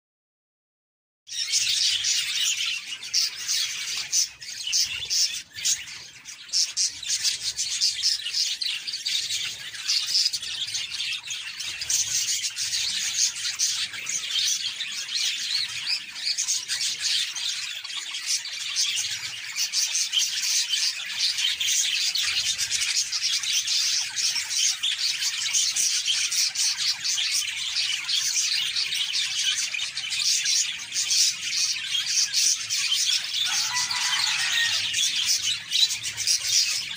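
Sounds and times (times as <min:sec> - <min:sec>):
budgerigars chattering: 0:01.3 - 0:36.9.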